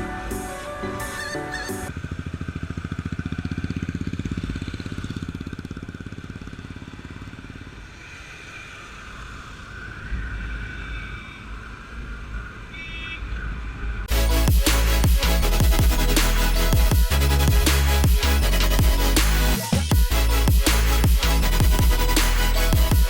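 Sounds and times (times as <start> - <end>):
music: 0.0 - 1.9, 14.1 - 23.0
motorcycle engine running: 1.9 - 8.0, 19.9 - 23.0
low rumble: 14.1 - 23.0.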